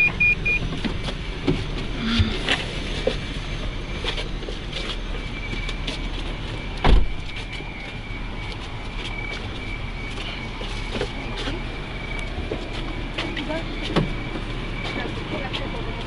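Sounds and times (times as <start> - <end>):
bus engine low rumble: 0.0 - 16.0
thin steady whine: 0.0 - 16.0
loud thump: 6.8 - 7.2.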